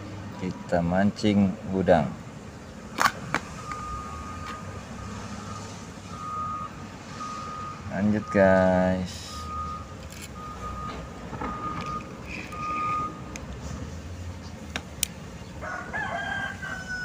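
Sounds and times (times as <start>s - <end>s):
low engine rumble: 0.0s - 17.0s
reversing alarm beeping: 3.6s - 13.3s
rooster crowing: 15.6s - 17.0s.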